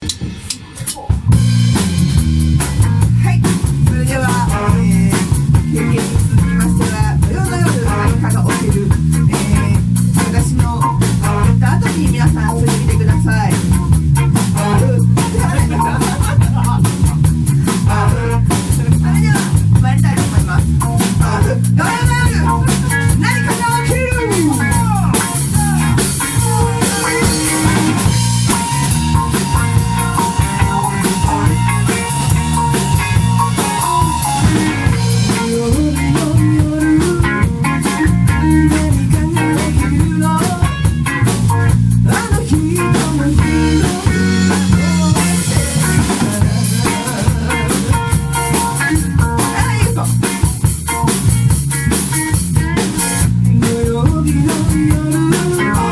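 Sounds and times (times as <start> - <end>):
drum kit with rimshots: 0.0 - 55.9
guitar: 0.0 - 55.9
live band playing pop song: 0.0 - 55.9.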